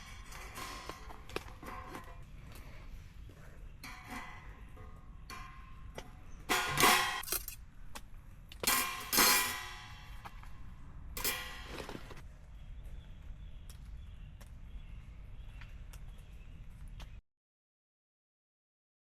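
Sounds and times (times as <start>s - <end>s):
metal parts clanking and rattling: 0.0s - 2.2s, 3.8s - 7.6s, 8.6s - 10.6s, 11.2s - 12.2s.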